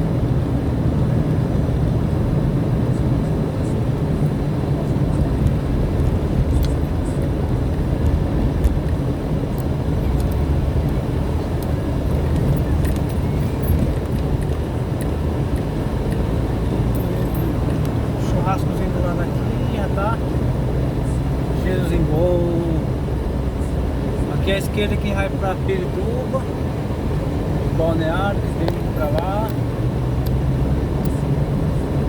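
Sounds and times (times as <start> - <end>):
vehicle engine and road noise: 0.0 - 32.0.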